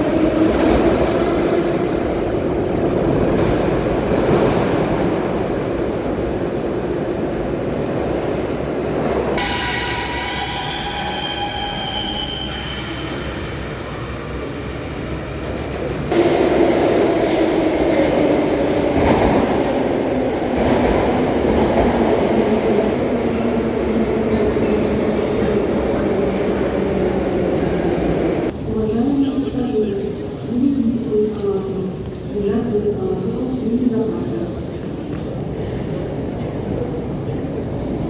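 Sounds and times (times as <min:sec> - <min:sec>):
metro train rumbling: 0:00.0 - 0:38.0
high wheel squeal: 0:09.4 - 0:15.2.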